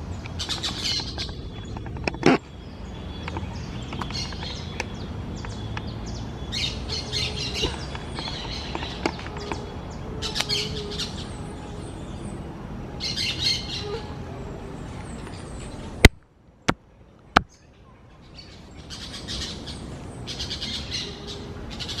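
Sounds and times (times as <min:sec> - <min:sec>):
parakeets chirping: 0:00.3 - 0:12.4, 0:18.3 - 0:22.0.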